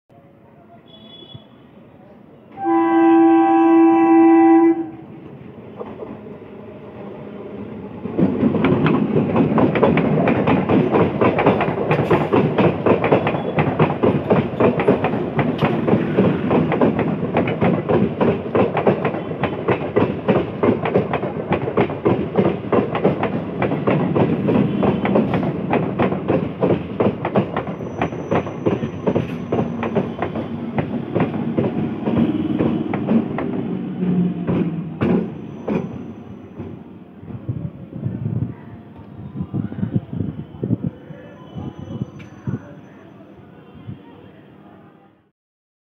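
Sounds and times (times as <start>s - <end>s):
train horn blast: 2.6s - 5.1s
train wheels clattering over joints: 8.2s - 33.8s.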